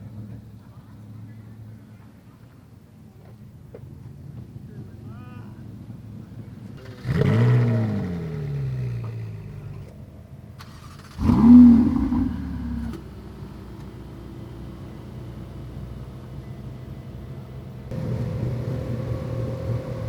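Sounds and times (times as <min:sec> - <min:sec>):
car engine idling: 0:06.4 - 0:20.0
car engine revving: 0:06.8 - 0:09.9, 0:10.6 - 0:13.2, 0:17.9 - 0:20.0.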